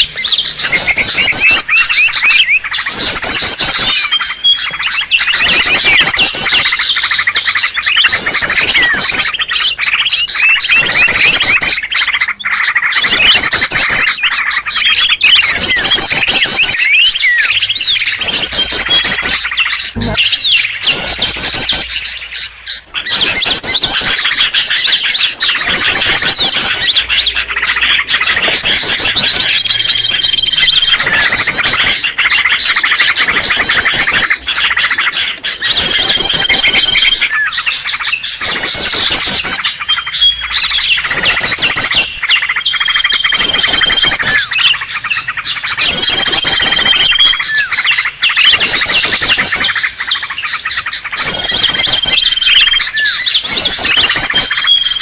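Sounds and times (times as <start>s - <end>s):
high bird whistle: 0.0s - 12.1s, 12.7s - 55.0s
birds chattering and trilling: 0.0s - 55.0s.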